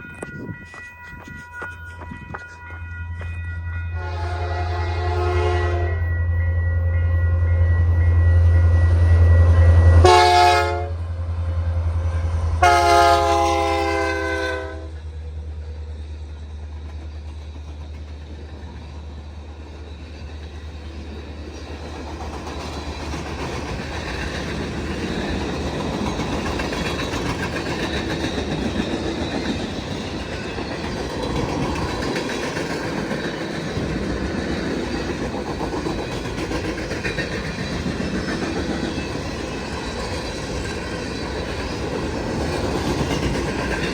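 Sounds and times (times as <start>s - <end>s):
railcar wheels clacking: 0.0s - 6.0s, 9.7s - 43.9s
diesel locomotive engine rumbling: 0.0s - 43.9s
train horn: 3.9s - 11.2s, 12.1s - 15.0s.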